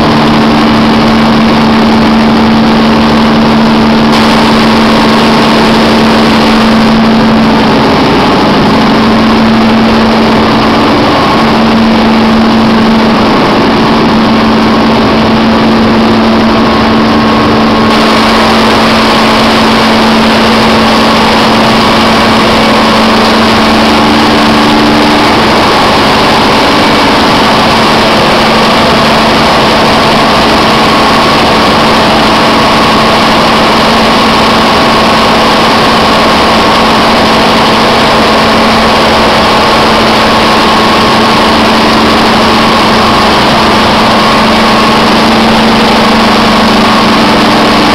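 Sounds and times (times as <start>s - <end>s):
engine droning steadily: 0.0s - 47.9s.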